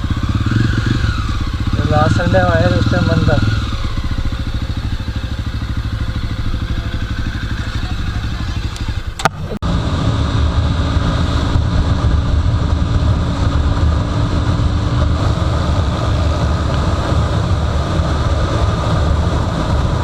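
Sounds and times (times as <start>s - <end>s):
motorcycle engine rumble: 0.0s - 20.0s.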